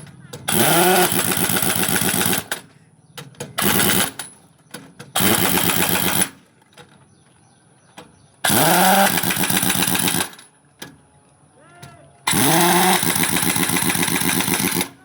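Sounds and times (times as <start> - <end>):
motor running in bursts: 0.5 - 2.7, 3.6 - 4.3, 5.2 - 6.4, 8.4 - 10.5, 12.3 - 15.0.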